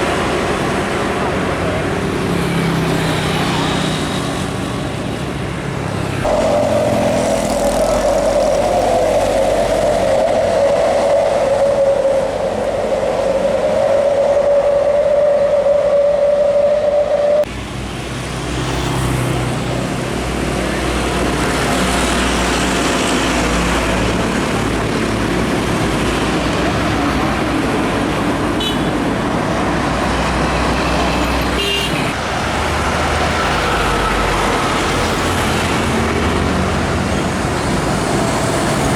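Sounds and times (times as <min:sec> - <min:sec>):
heavy trucks passing: 0:00.0 - 0:38.9
long steady tone: 0:06.2 - 0:17.5.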